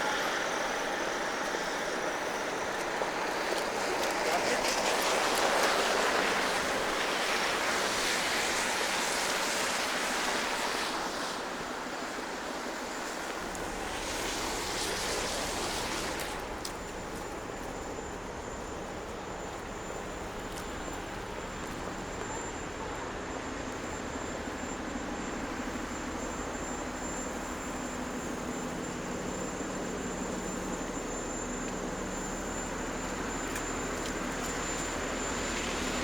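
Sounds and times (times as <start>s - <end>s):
traffic on wet street: 0.0s - 22.5s, 23.5s - 36.0s
faint high whine: 0.0s - 36.0s.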